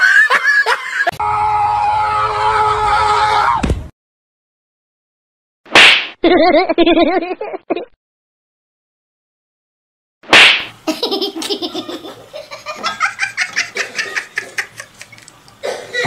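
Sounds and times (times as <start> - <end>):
person laughing hard: 0.0 - 1.2, 6.2 - 7.9, 10.9 - 16.0.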